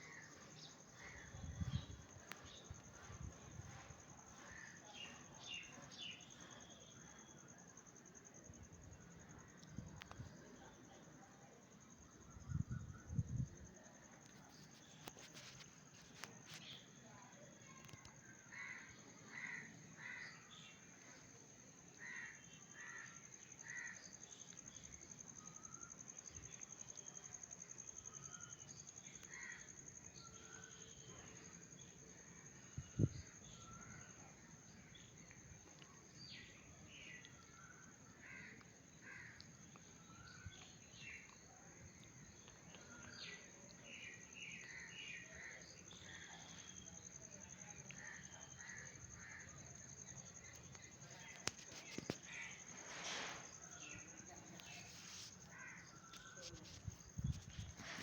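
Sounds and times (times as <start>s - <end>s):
crow cawing faintly: 18.5s - 20.5s.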